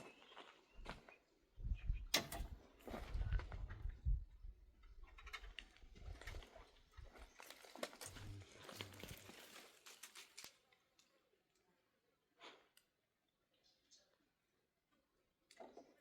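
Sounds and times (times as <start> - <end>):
rustling: 7.4 - 10.6.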